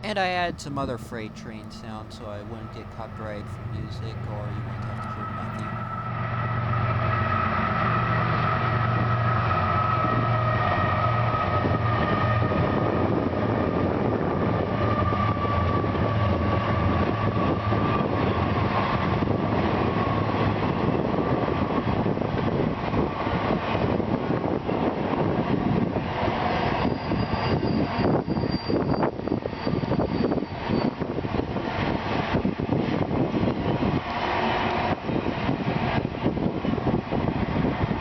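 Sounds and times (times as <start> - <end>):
high whine: 0.0 - 11.9
locomotive engine drone: 0.0 - 18.1.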